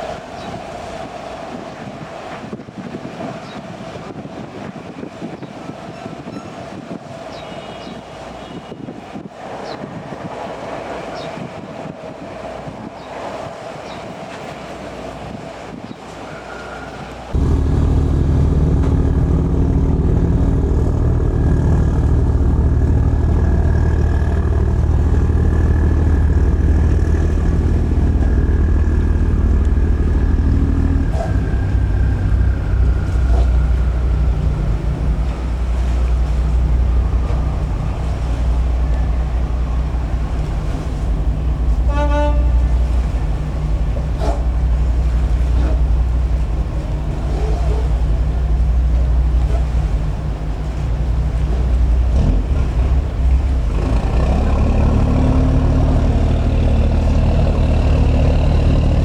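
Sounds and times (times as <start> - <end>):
large engine running: 17.4 - 41.9, 42.5 - 59.0
short horn toot: 41.8 - 43.0.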